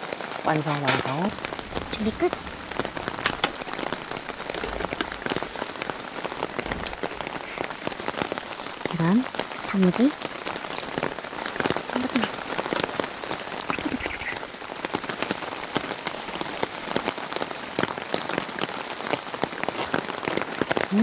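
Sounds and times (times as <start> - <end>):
heavy rain: 0.0 - 21.0
raindrops pattering on surface: 0.0 - 21.0.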